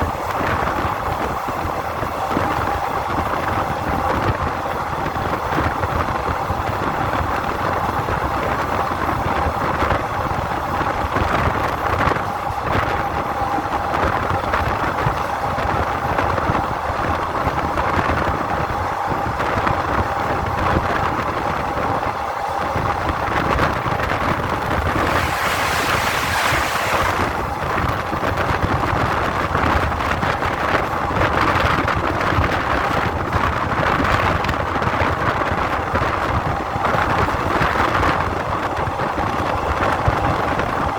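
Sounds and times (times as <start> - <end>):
wind noise: 0.0 - 40.9
vehicle rumble: 24.0 - 28.5
high whine: 24.3 - 28.1
burst of hiss: 24.6 - 27.6.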